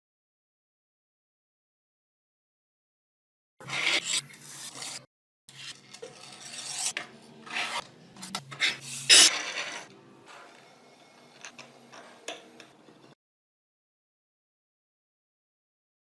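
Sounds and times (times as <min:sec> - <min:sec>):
rubbing against metal scale: 0:03.6 - 0:09.9.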